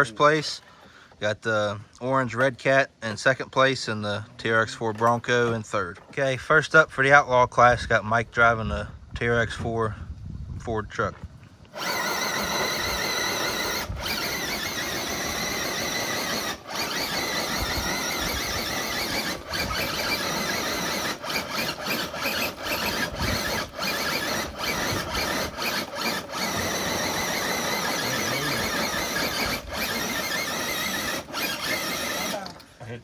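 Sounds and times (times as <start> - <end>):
electric motor and gears whining: 11.7 - 32.7.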